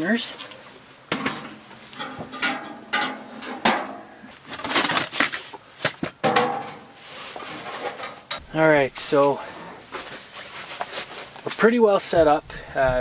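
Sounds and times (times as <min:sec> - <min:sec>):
metal stove clanking: 0:01.1 - 0:04.2, 0:06.2 - 0:08.6.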